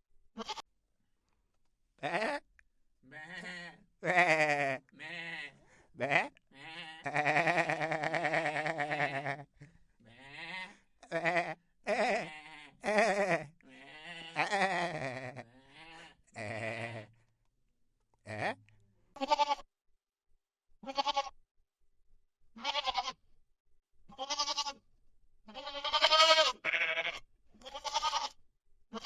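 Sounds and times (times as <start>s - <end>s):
goats bleating: 0.4s - 0.6s, 2.0s - 2.4s, 3.0s - 17.1s, 19.2s - 19.7s, 20.8s - 21.4s, 22.6s - 23.2s, 24.1s - 24.8s, 25.5s - 29.0s.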